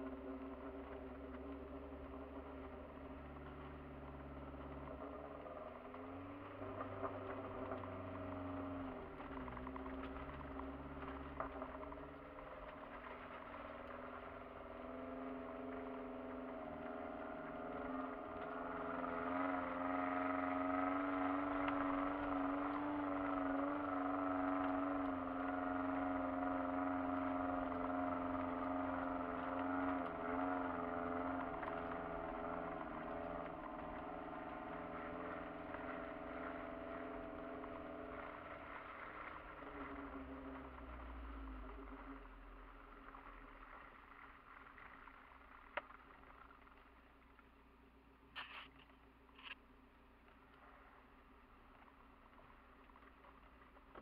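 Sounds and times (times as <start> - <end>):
car engine running under load: 0.0 - 54.0.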